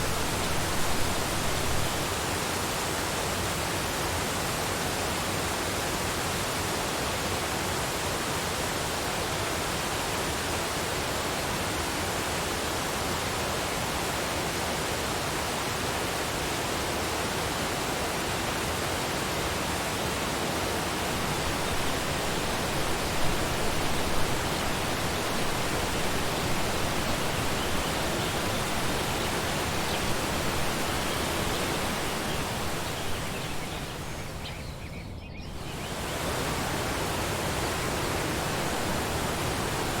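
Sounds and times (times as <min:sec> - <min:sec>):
waterfall rushing: 0:00.0 - 0:02.6, 0:18.3 - 0:34.6, 0:35.6 - 0:40.0.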